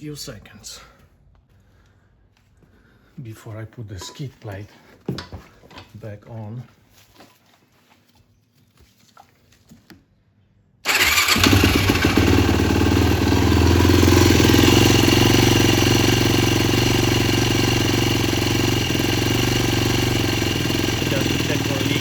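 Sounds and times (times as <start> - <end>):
atv engine starting and running: 10.8 - 22.0.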